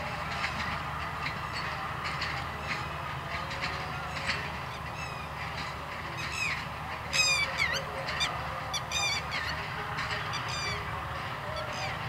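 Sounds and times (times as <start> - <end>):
train rumbling on tracks: 0.0 - 12.0
birds calling: 4.7 - 5.4, 6.2 - 12.0.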